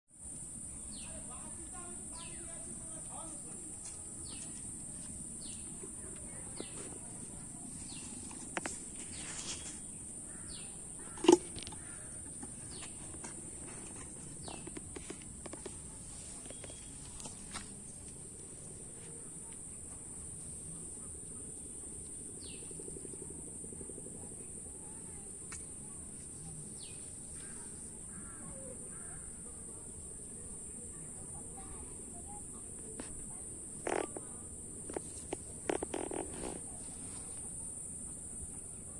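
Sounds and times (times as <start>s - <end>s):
high-pitched insect drone: 33.0s - 36.7s.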